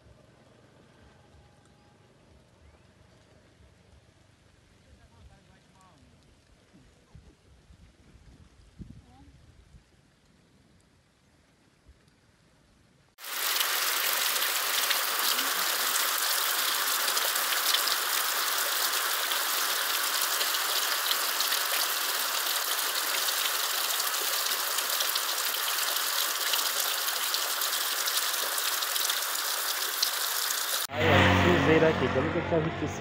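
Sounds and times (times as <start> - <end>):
heavy rain falling: 13.2 - 30.9.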